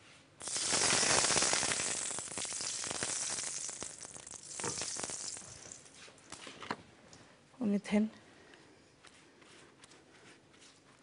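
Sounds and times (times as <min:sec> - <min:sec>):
food frying in hot oil: 0:00.4 - 0:05.9.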